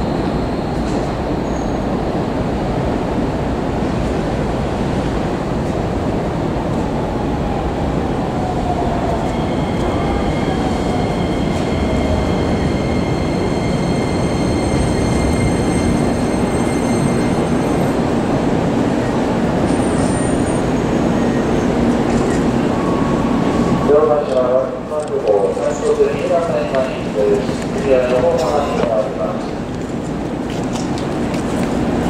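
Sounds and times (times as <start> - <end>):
high steady whistling tones: 8.6 - 18.0.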